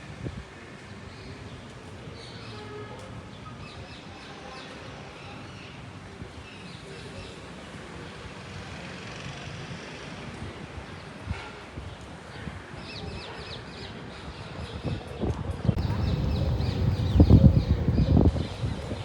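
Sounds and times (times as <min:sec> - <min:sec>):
faint voices: 0:14.8 - 0:19.0
street hum: 0:15.2 - 0:19.0
birds chirping: 0:15.8 - 0:19.0.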